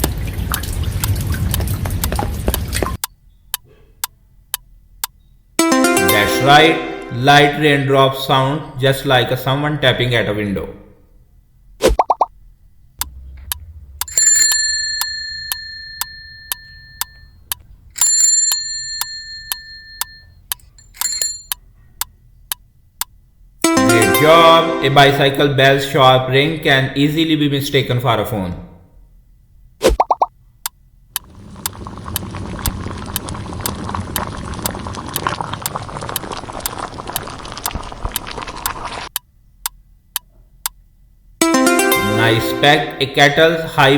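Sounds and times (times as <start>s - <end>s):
bicycle bell ringing: 14.1s - 17.3s, 18.0s - 21.6s
kettle boiling with whistle: 31.2s - 39.1s.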